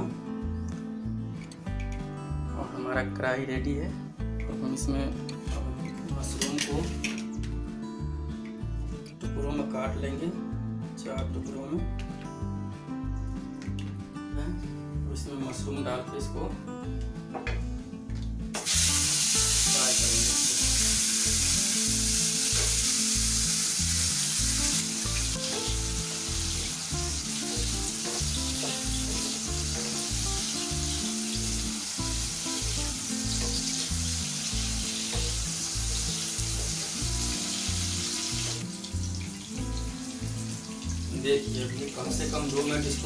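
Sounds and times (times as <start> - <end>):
mushrooms sizzling in hot oil: 18.6 - 43.0.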